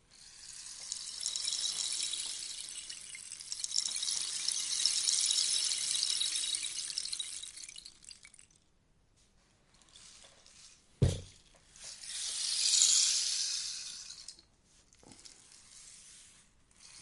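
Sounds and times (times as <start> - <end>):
rainstick beads trickling: 0.1 - 8.6, 9.8 - 10.8, 11.4 - 15.4
sharp thump: 11.0 - 11.3.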